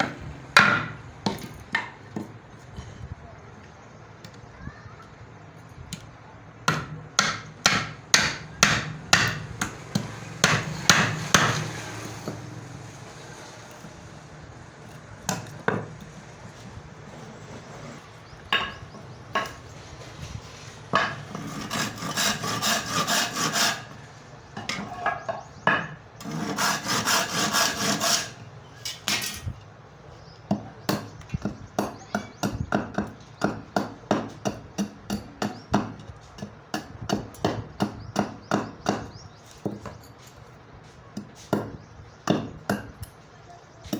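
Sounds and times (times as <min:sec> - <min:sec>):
hammer striking wood: 0:00.0 - 0:02.3, 0:06.6 - 0:11.7, 0:20.9 - 0:23.7.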